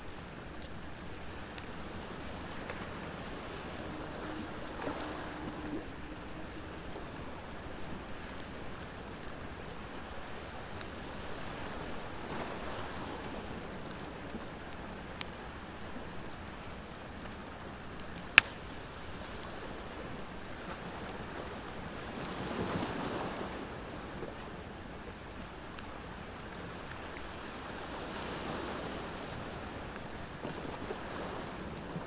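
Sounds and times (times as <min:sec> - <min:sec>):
bonfire crackling and popping: 0:00.0 - 0:05.0, 0:12.9 - 0:19.7
ocean waves washing on shore: 0:00.0 - 0:32.0.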